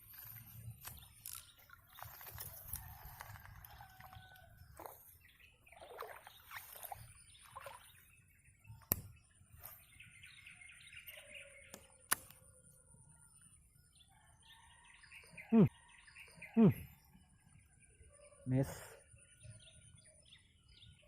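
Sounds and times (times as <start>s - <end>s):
birds calling and chirping: 0.0s - 21.0s
sharp clicks: 11.7s - 12.4s.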